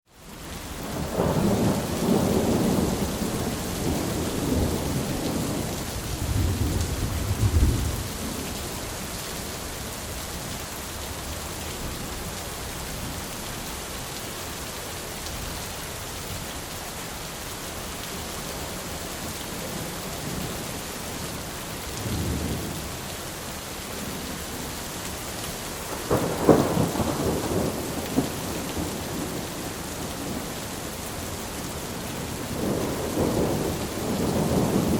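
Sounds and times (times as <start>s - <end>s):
steady rain hiss: 0.1s - 34.9s
rolling thunder: 0.9s - 8.4s, 25.9s - 30.6s, 32.4s - 34.9s.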